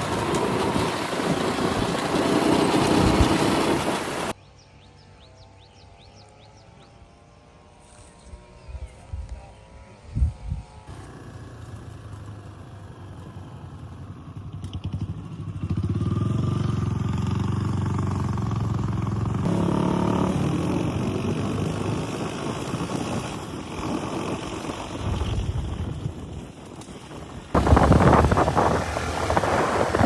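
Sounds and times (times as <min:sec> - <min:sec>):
motorbike engine running: 0:10.9 - 0:30.0.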